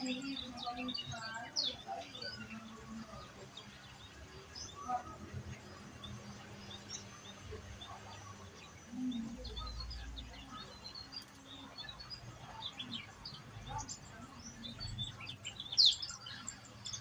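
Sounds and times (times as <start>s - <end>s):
bird chirping: 0.0s - 17.0s.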